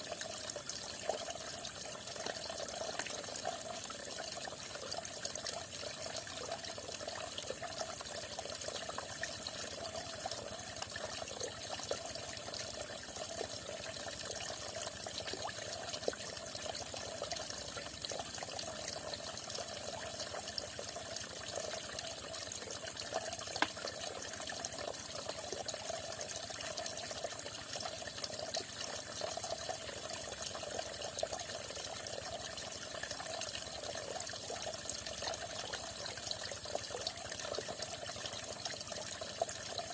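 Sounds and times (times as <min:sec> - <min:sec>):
water splashes: 0:23.3 - 0:25.0.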